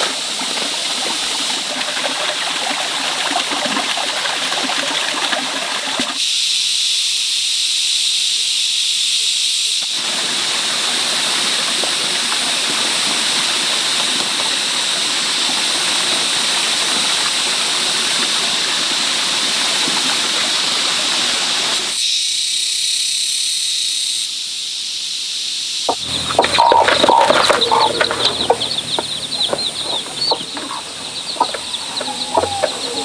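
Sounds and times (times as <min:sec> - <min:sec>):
water rushing: 0:10.0 - 0:21.9, 0:25.9 - 0:33.0
chicken clucking: 0:25.9 - 0:33.0.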